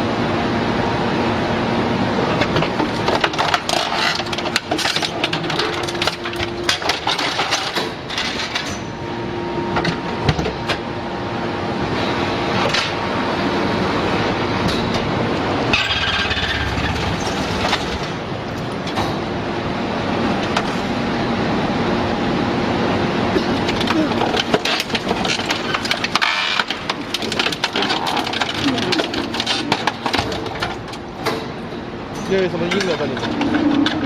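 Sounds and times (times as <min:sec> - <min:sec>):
hydraulic machine drone: 0:00.0 - 0:34.0
scrap metal clanking: 0:23.4 - 0:31.5.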